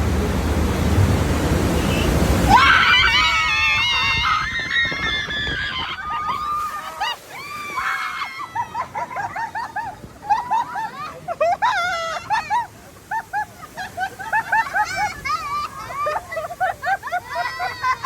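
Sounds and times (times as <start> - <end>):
rushing water: 0.0 - 18.0
people screaming and squealing: 2.5 - 12.7.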